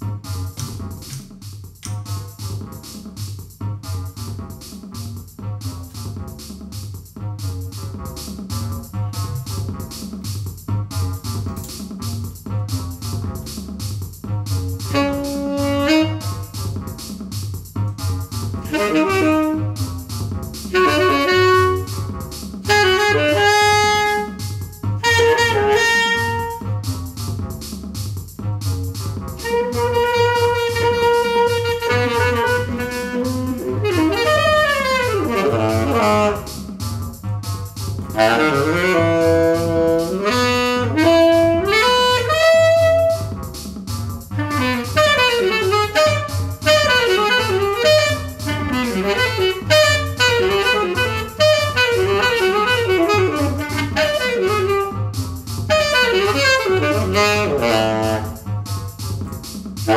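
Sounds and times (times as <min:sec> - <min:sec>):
saxophone-like lead melody: 0:00.0 - 0:03.0, 0:14.3 - 0:17.0, 0:17.8 - 0:27.4, 0:28.5 - 0:59.9
pulsing bass beat: 0:00.0 - 0:59.9.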